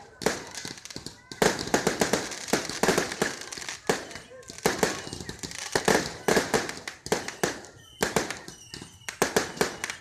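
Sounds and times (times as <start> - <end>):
fireworks bangs and cracks: 0.0 - 10.0.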